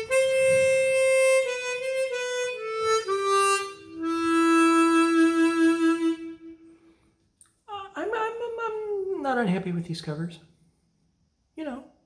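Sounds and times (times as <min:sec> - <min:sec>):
harmonica playing: 0:00.0 - 0:07.0.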